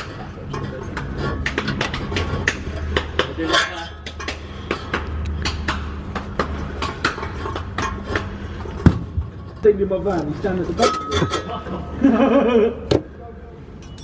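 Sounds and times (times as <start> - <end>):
hand tools clinking on metal: 0.0 - 5.0, 10.2 - 11.7.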